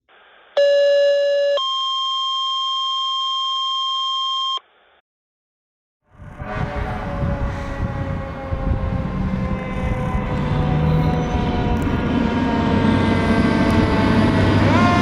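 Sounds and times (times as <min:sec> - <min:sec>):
electronic beep tones: 0:00.6 - 0:04.6
vehicle noise: 0:06.0 - 0:15.0.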